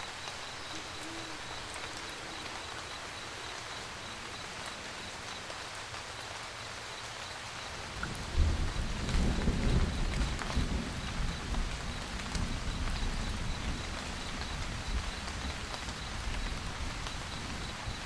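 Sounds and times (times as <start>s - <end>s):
rain pattering: 0.0s - 18.0s
thunder rumbling: 7.8s - 18.0s.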